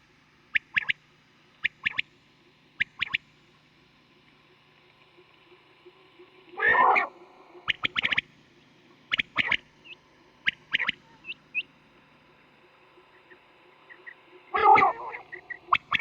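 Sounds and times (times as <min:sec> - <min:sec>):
quail calling: 0:06.6 - 0:07.1, 0:14.0 - 0:16.0
faint small chirps: 0:09.1 - 0:11.7.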